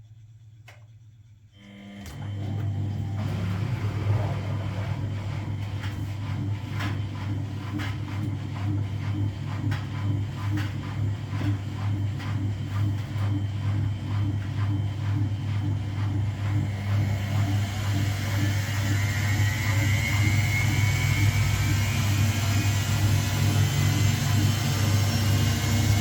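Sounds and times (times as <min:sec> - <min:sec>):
washing machine humming: 0:01.5 - 0:26.0.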